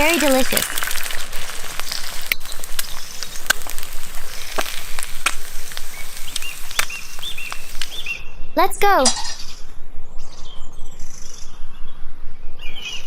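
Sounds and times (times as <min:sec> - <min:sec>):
sizzling hiss with crackles: 0:00.0 - 0:08.2.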